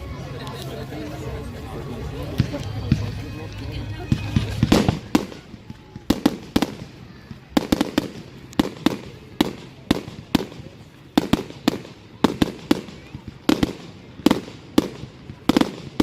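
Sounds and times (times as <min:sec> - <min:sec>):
fireworks bangs: 0:04.0 - 0:16.0.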